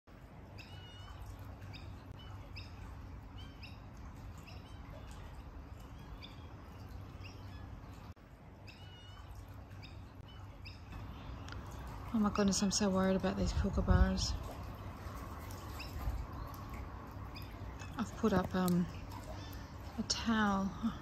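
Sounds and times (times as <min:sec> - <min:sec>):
pool cleaner mechanical hum: 0:00.1 - 0:21.0
bird chirping: 0:00.6 - 0:11.6.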